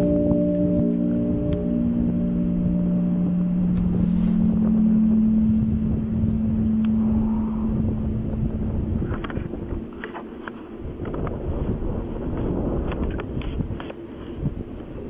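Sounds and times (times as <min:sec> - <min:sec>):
higher tone: 0:00.0 - 0:10.4
low trumpet-like drone: 0:00.0 - 0:14.4
wind rumbling on microphone: 0:00.0 - 0:15.0.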